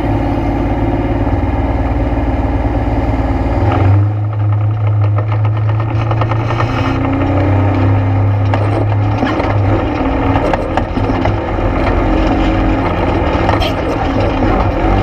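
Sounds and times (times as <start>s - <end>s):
atv engine running: 0.0s - 15.0s
knocks and rattles over rough ground: 3.6s - 15.0s.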